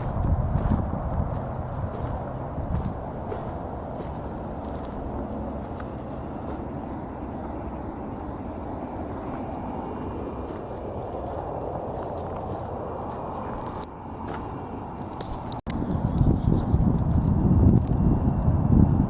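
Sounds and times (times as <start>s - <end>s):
pulsing high buzz: 0.0s - 15.1s
motorcycle engine rumbling: 0.0s - 19.0s.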